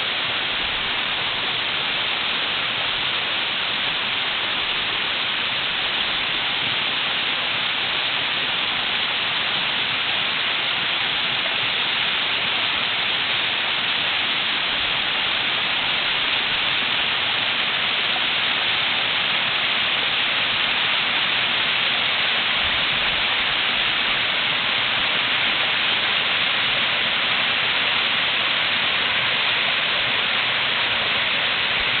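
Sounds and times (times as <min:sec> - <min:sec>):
waterfall rushing on rock: 0:00.0 - 0:32.0.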